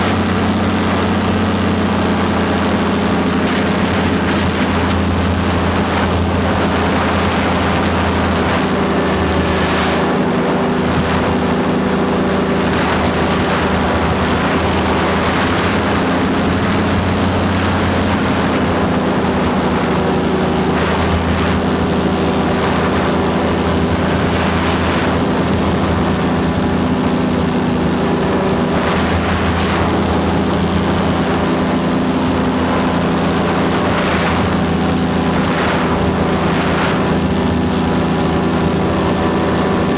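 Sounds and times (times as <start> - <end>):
paramotor engine and propeller: 0.0 - 39.9
wind rushing over microphone: 0.0 - 39.9.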